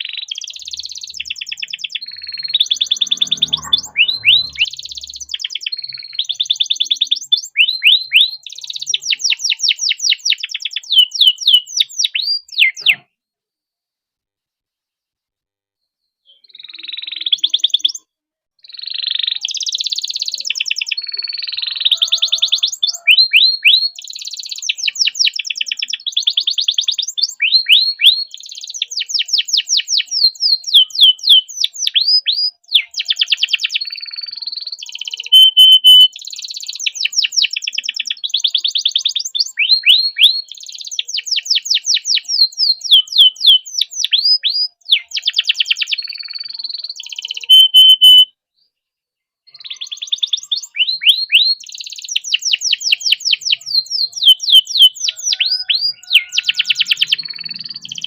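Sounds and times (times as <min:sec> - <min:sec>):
canary singing trills: 0:00.0 - 0:13.1, 0:16.3 - 0:48.3, 0:49.5 - 0:58.0.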